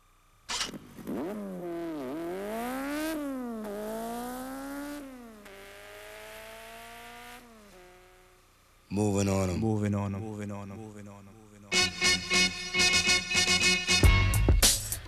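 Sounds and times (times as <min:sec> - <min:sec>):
vehicle engine accelerating: 0:00.5 - 0:08.4.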